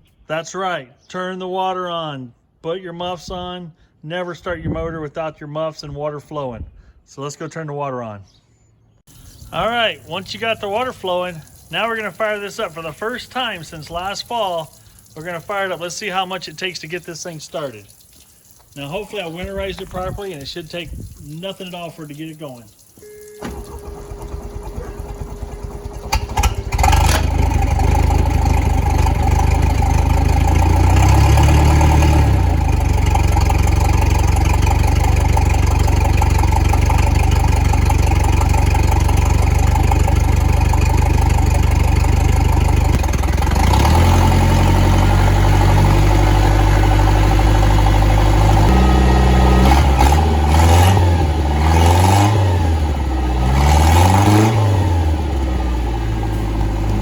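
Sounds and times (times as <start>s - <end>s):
boat engine starter cranking: 22.9s - 46.0s
boat engine running and revving: 23.5s - 57.0s.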